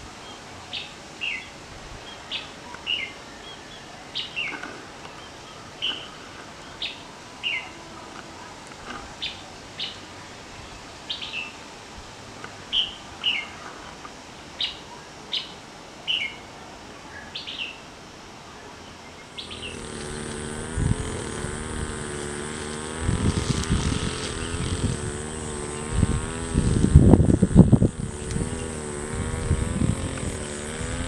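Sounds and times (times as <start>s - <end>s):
small bird chirping: 19.2s - 31.0s
insect buzzing: 19.3s - 31.0s
high whine: 19.4s - 31.0s.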